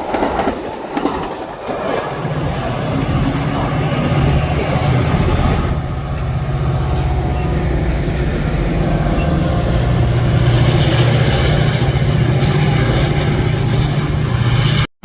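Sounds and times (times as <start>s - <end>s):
train rail cars rumbling: 0.0s - 15.0s.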